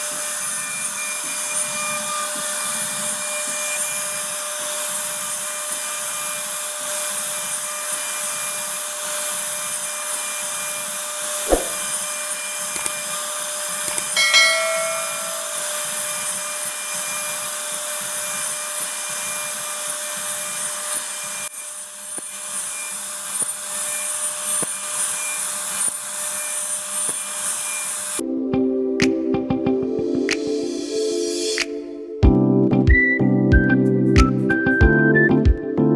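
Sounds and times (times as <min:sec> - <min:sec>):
sharp knock: 0:11.5 - 0:11.9
brief ringing tone: 0:14.2 - 0:15.9
router cutting wood: 0:18.0 - 0:28.2.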